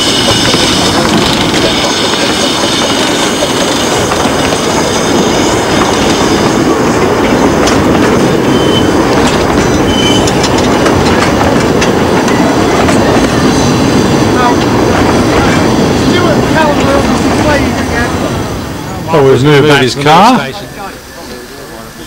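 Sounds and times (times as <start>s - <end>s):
wheel squeals: 0.0s - 6.7s, 7.4s - 14.6s
wheels clicking over rail joints: 0.0s - 18.2s
miniature train rumbling on track: 0.0s - 22.0s.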